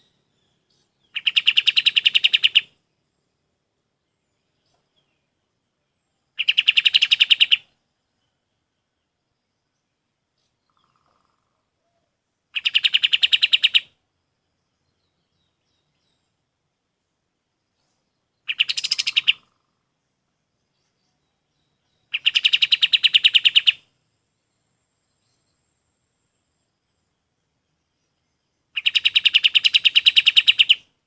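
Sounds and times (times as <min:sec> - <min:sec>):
bird trilling: 0:01.1 - 0:02.7, 0:06.4 - 0:07.7, 0:12.6 - 0:13.9, 0:18.5 - 0:19.6, 0:22.1 - 0:23.8, 0:28.8 - 0:30.9.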